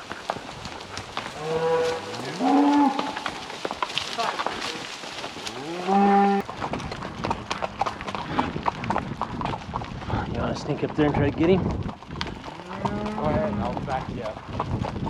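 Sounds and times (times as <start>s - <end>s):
cattle mooing: 1.2s - 3.5s, 4.1s - 6.4s, 12.5s - 13.7s.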